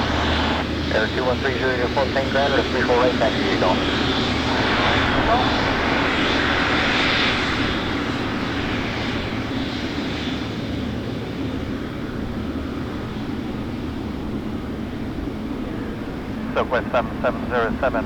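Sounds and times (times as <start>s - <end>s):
aircraft engine rushing: 0.0s - 18.0s.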